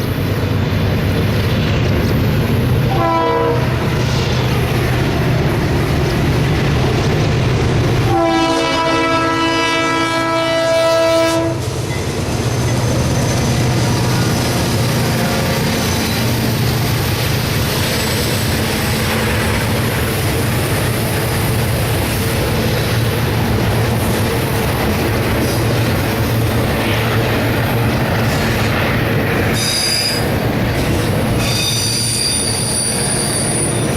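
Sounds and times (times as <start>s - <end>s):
train wheels rumbling on rails: 0.0s - 33.9s
locomotive horn blast: 2.9s - 3.9s, 8.0s - 11.7s.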